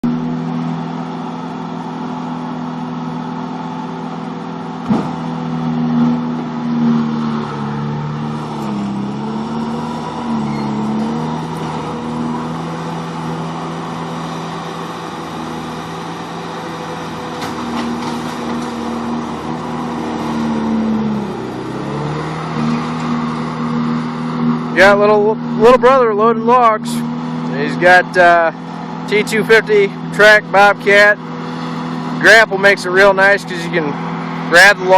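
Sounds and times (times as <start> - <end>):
diesel engine at high revs: 0.0 - 34.9
sharp knock: 4.8 - 5.2.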